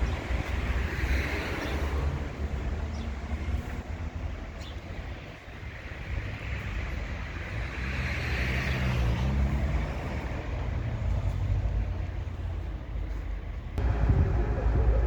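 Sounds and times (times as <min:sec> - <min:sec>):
road noise: 0:00.0 - 0:15.0
car engine humming: 0:13.8 - 0:15.0.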